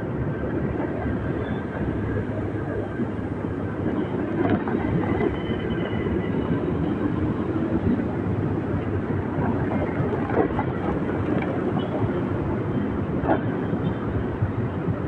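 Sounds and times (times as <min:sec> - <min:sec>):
road rumble: 0:00.0 - 0:15.0
wind: 0:00.0 - 0:15.0.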